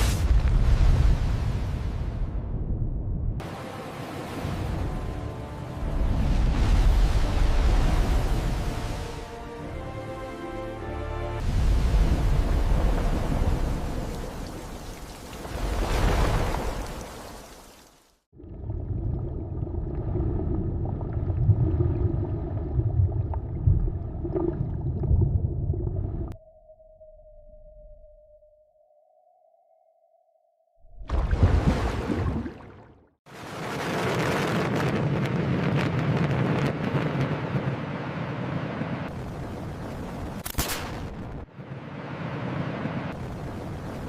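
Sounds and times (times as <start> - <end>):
deep rumbling with crackles: 0.0 - 3.4, 18.4 - 26.4, 33.4 - 41.5
low rumbling and gurgling: 18.3 - 26.4.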